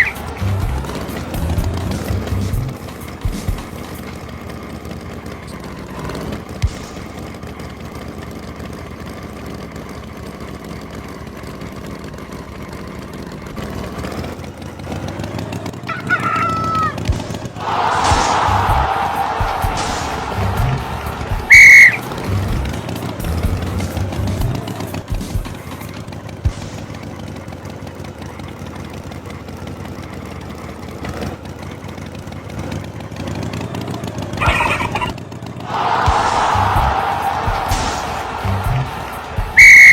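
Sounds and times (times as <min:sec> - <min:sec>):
tractor engine running: 0:00.0 - 0:39.9
rooster crowing: 0:17.6 - 0:22.4, 0:35.7 - 0:39.9
cartoon sound effect: 0:21.5 - 0:22.1.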